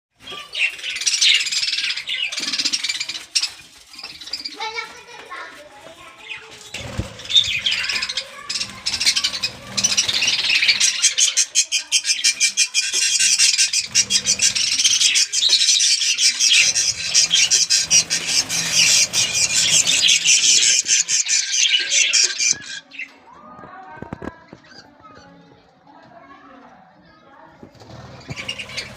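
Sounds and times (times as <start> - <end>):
budgerigars chattering and squawking: 0.2 - 4.8, 6.2 - 23.1, 27.9 - 28.9.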